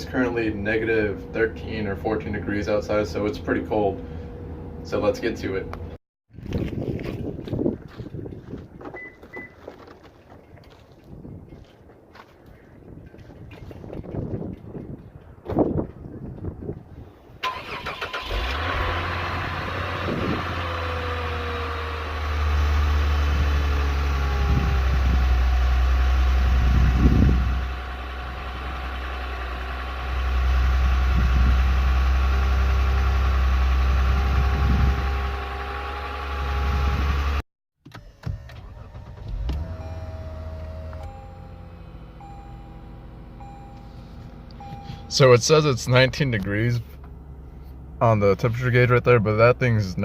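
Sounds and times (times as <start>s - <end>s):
car engine idling: 17.4s - 35.4s, 38.4s - 50.0s
car engine cranking: 17.4s - 50.0s.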